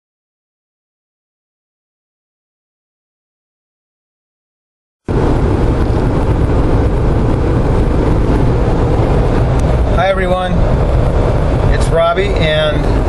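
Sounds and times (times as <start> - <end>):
car cabin road and wind noise: 5.1 - 13.0.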